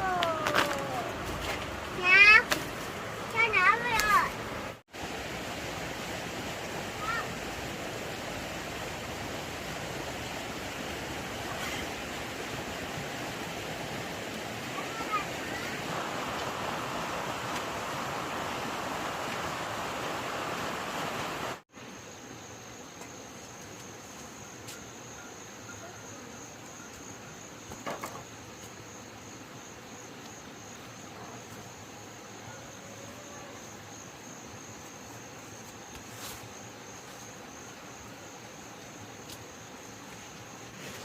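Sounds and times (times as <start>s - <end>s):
background hiss: 0.0s - 41.0s
cricket trilling: 21.8s - 41.0s.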